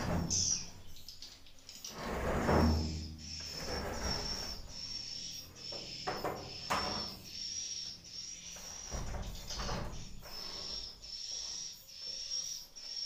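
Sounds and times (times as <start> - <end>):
rustling and scraping: 0.0 - 1.1, 1.8 - 5.0
high thin bird chirps: 0.0 - 13.0.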